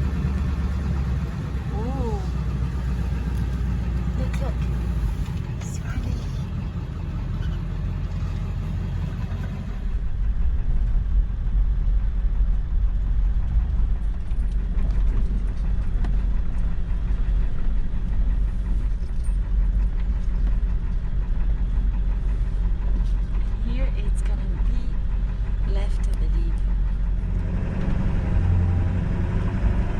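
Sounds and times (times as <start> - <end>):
truck engine and road rumble: 0.0 - 29.9.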